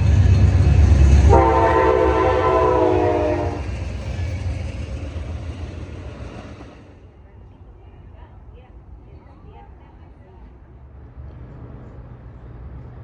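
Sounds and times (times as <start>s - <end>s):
diesel train rumbling past: 0.0s - 13.0s
train horn blast: 1.0s - 3.8s.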